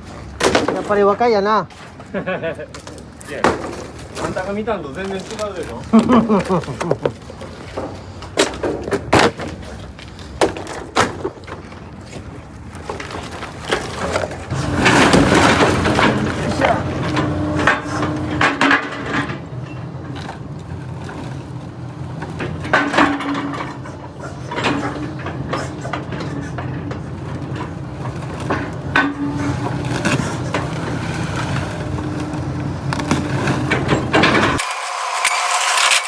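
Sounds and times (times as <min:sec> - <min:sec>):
heavy knocks and creaks: 0:01.7 - 0:34.6
machine humming: 0:14.5 - 0:36.0.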